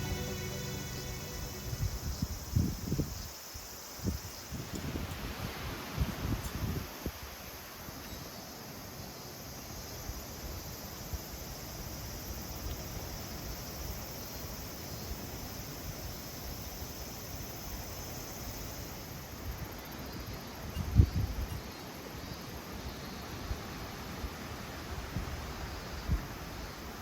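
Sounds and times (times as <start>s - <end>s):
high-pitched hum: 0.0s - 2.8s
even rushing hiss: 0.0s - 7.7s.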